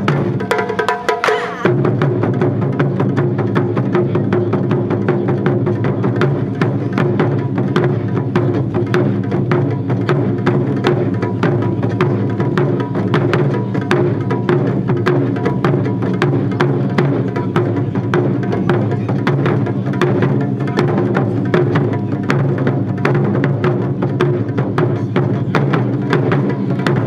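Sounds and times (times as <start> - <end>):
taiko drum ensemble: 0.0 - 27.0.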